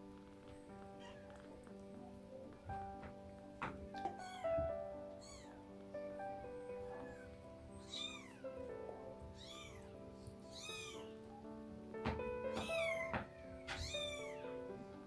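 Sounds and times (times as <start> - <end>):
kittens mewing: 4.1 - 5.7, 6.9 - 8.5, 9.3 - 11.3, 12.5 - 14.6.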